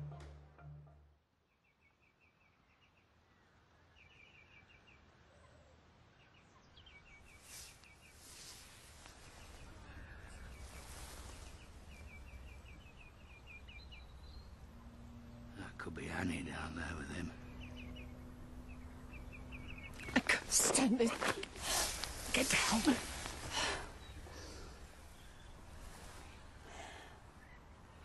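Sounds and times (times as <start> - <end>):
small bird chirping: 3.9 - 15.3, 16.2 - 21.1.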